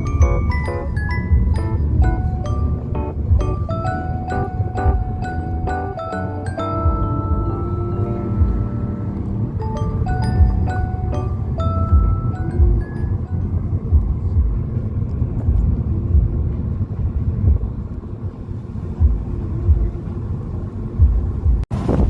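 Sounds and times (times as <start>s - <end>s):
mallet percussion tune: 0.0s - 14.5s
vehicle rumble: 0.0s - 22.0s
wind buffeting microphone: 0.0s - 22.0s.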